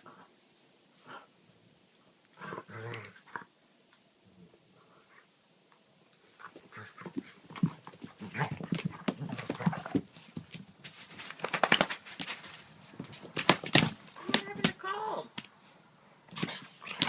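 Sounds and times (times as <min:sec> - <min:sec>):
dogs growling and yelping: 0:02.3 - 0:03.6, 0:06.2 - 0:10.1, 0:16.3 - 0:17.0
dogs scuffling: 0:06.3 - 0:15.6, 0:16.3 - 0:17.0
claws clicking on hard floor: 0:07.0 - 0:14.8.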